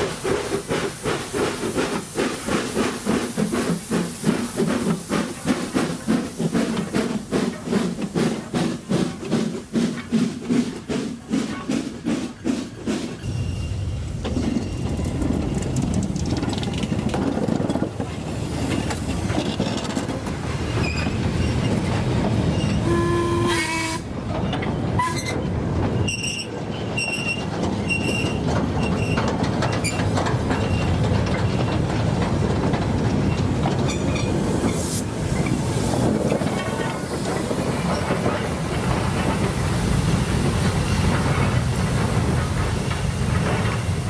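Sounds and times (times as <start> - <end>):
steam train rumbling on rails: 0.0 - 44.0.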